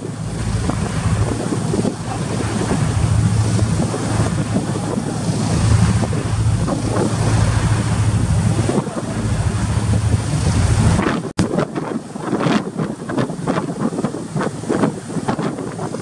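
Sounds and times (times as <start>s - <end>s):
ship engines humming: 0.0s - 11.3s
sea rushing: 0.0s - 16.0s
wind blowing across microphone: 0.0s - 16.0s.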